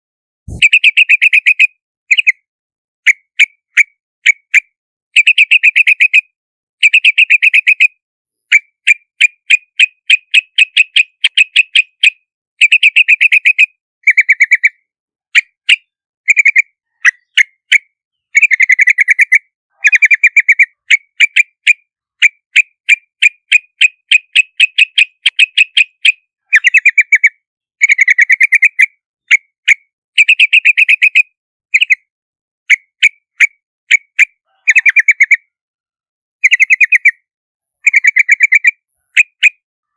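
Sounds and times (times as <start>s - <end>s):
bulbul bubbly chirps: 0.5s - 1.4s.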